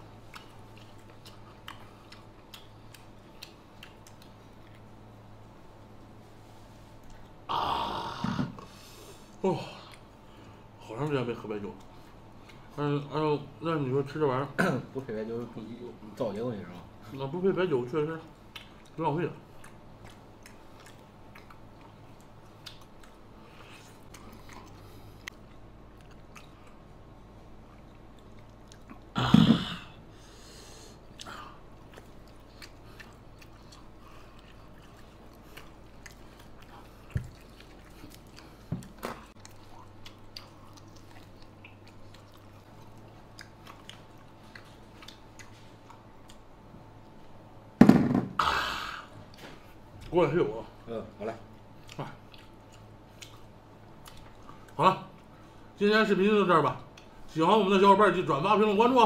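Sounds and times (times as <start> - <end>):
chewing and gnawing meat: 0.0 - 7.5, 18.0 - 29.1, 31.0 - 47.6, 51.4 - 55.7.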